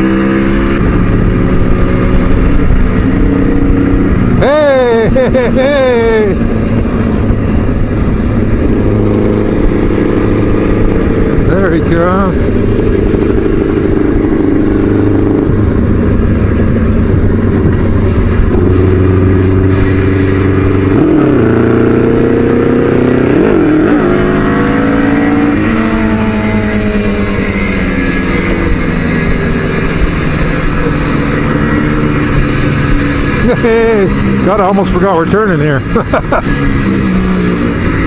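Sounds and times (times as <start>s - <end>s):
wind rush: 0.0s - 34.5s
motorcycle engine running: 0.0s - 38.0s.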